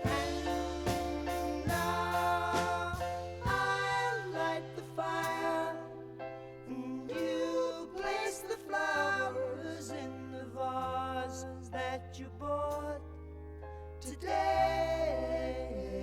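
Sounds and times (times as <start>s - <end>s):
held bass notes: 0.0s - 6.0s
person singing: 0.0s - 6.0s.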